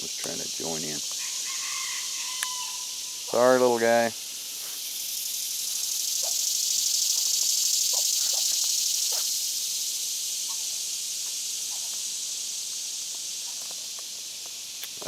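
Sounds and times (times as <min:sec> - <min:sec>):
insects chorus: 0:00.0 - 0:15.0
faint poultry calls: 0:01.0 - 0:03.4.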